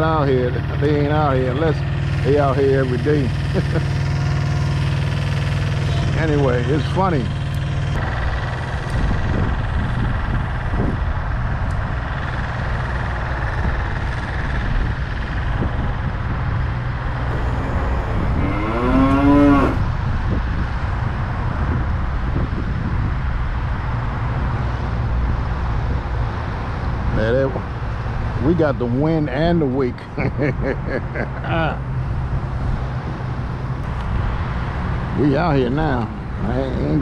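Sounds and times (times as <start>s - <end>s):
lawnmower engines droning: 0.0s - 15.6s, 17.1s - 20.0s, 27.2s - 37.0s
short voice-like call: 17.3s - 19.9s.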